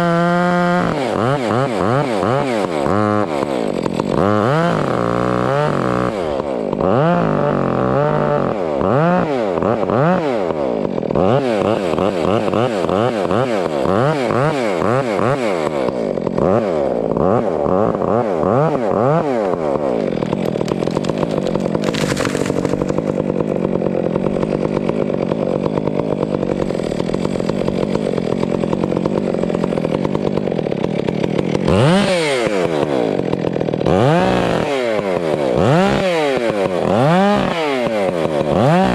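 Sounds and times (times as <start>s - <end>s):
chainsaw engine revving: 0.0s - 38.9s.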